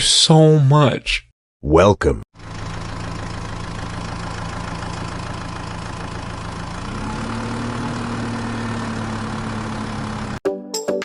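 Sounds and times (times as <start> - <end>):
engine idling: 2.4 - 10.4.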